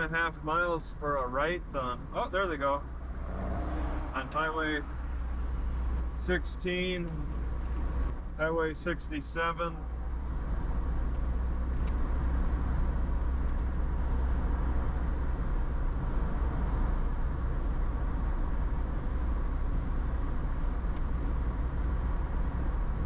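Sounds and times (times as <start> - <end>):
vehicle cabin road rumble: 0.0 - 23.0.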